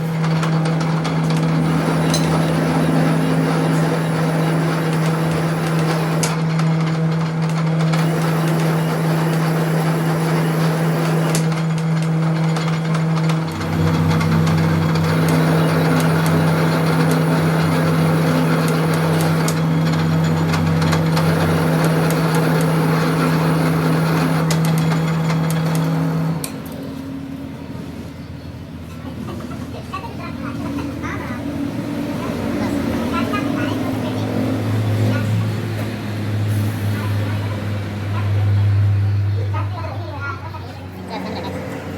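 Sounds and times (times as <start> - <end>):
electric motor hum: 0.0 - 27.8
deeper hum: 1.0 - 6.5, 13.0 - 24.6.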